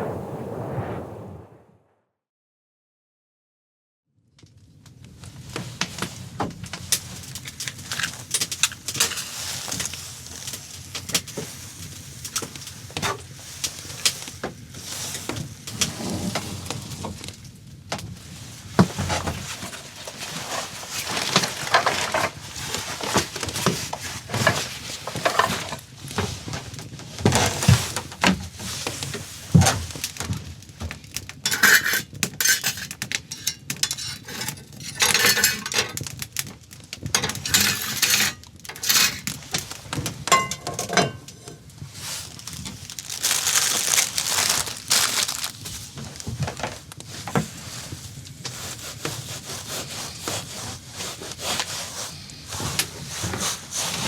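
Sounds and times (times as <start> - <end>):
rustling: 18.3 - 26.6, 41.6 - 54.0
objects clinking and knocking: 40.3 - 41.6.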